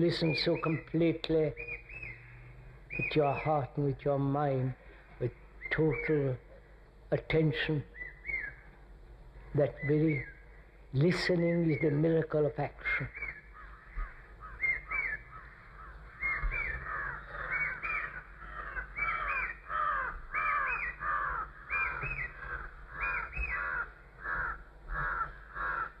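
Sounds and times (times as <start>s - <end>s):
crow cawing: 13.2s - 26.0s.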